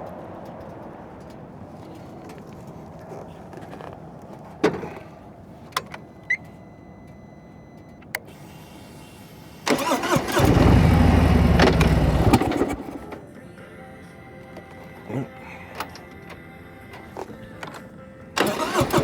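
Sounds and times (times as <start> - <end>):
sharp clicks: 0.0 - 13.3
motorcycle engine starting and idling: 0.0 - 19.0.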